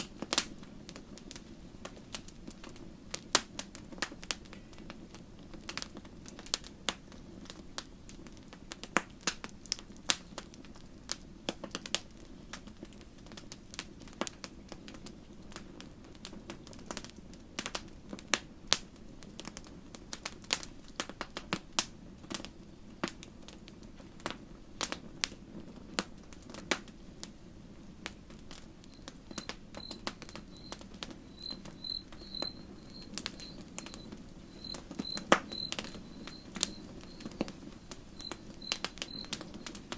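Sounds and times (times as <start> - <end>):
wood fire crackling: 0.0 - 39.9
faint high chirp: 28.9 - 39.8.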